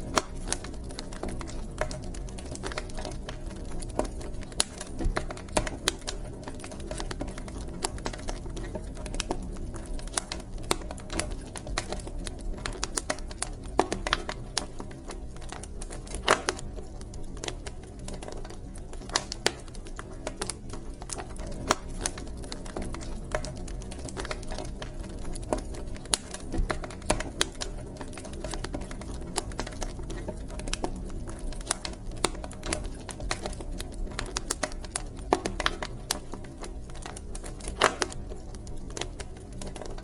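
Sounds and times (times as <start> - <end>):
low rumble of flame: 0.0 - 40.0
wood fire crackling and popping: 0.0 - 40.0.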